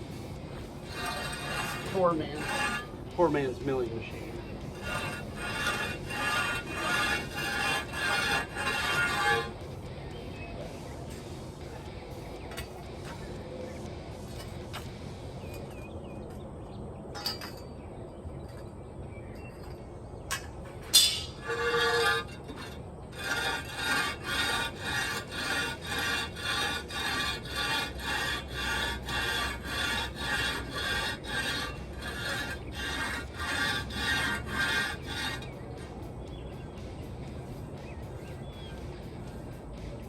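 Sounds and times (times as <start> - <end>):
metal rasping on rough concrete: 0.0 - 9.8, 10.6 - 13.4, 14.3 - 14.9, 19.5 - 35.9.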